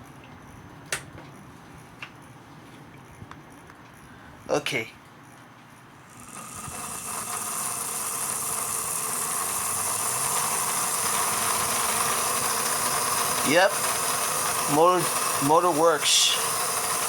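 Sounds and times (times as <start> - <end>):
small electric motor whining: 6.0 - 17.0.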